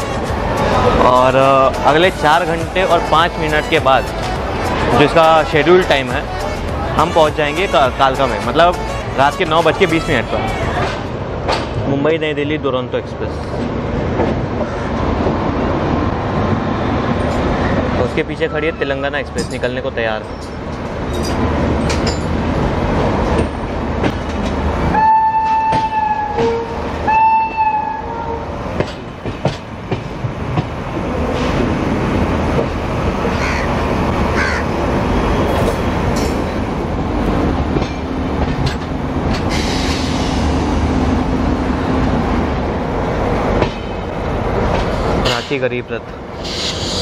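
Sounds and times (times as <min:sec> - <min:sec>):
train coaches rumbling and clattering: 0:00.0 - 0:47.0
train horn blasts: 0:07.1 - 0:10.3, 0:24.9 - 0:28.6.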